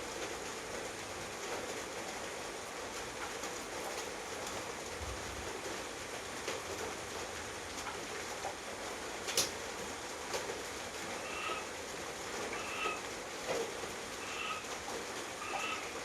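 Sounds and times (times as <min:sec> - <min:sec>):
steady rain: 0:00.0 - 0:16.0
two-tone animal call: 0:11.2 - 0:11.7, 0:12.5 - 0:13.0, 0:14.2 - 0:14.7, 0:15.4 - 0:16.0.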